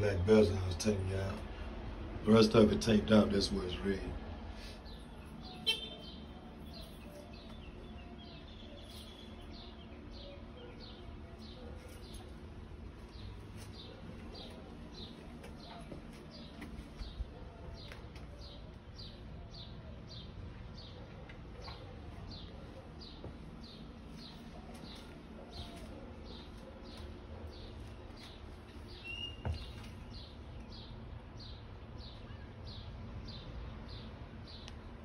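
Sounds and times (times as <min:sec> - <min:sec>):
low background hum: 0:00.0 - 0:35.0
bird chirping: 0:04.9 - 0:12.4, 0:21.6 - 0:34.7.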